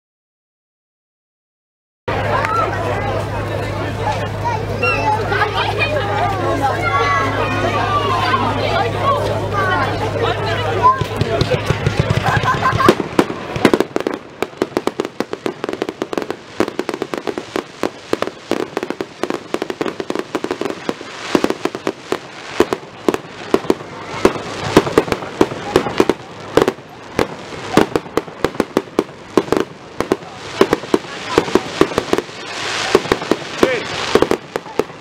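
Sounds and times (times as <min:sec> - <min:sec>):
fireworks bangs and crackles: 0:07.4 - 0:35.0.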